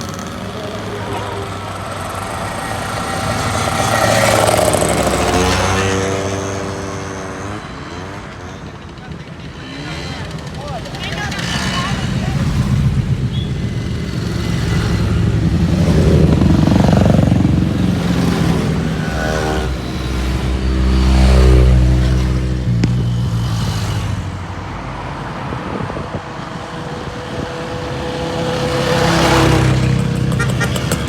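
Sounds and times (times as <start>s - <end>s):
motorcycles riding past: 0.0s - 31.0s.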